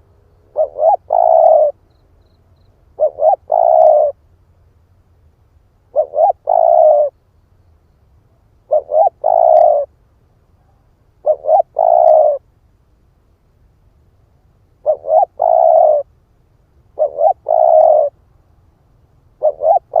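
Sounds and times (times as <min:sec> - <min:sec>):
dove cooing: 0:00.0 - 0:01.8, 0:03.0 - 0:04.2, 0:05.9 - 0:07.2, 0:08.7 - 0:09.9, 0:10.6 - 0:12.4, 0:14.8 - 0:16.1, 0:17.0 - 0:18.2, 0:19.4 - 0:20.0.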